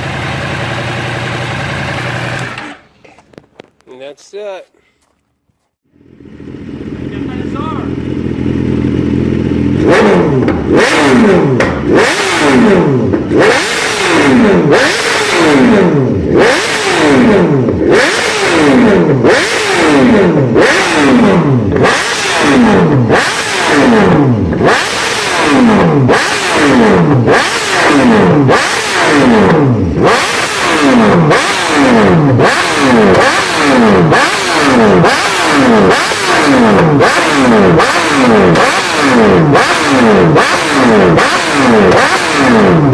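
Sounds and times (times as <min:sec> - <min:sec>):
motorcycle engine revving: 0:00.0 - 0:03.8, 0:05.8 - 0:42.9.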